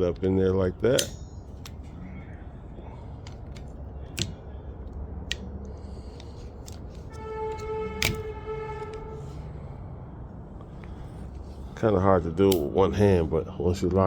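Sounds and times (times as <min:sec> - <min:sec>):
low steady hum: 0:00.0 - 0:14.0
plastic wiper blade clicks: 0:03.3 - 0:04.4, 0:06.2 - 0:09.0.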